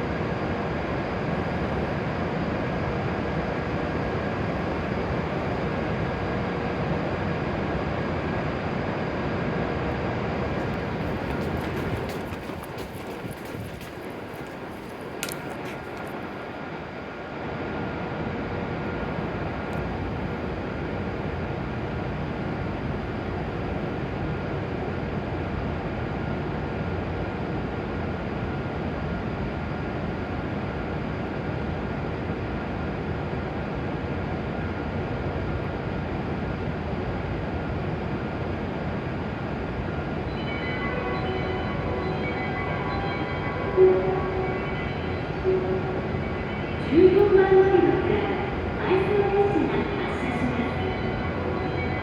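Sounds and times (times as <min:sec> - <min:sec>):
train equipment whirring hum: 0:00.0 - 0:52.0
faint steady tones: 0:10.4 - 0:16.5, 0:40.1 - 0:52.0.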